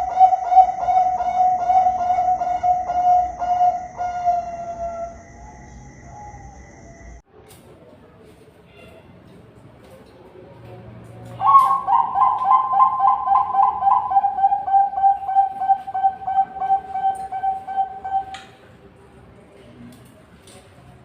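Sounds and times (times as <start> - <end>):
dove cooing: 0.0 - 5.2, 11.4 - 18.5.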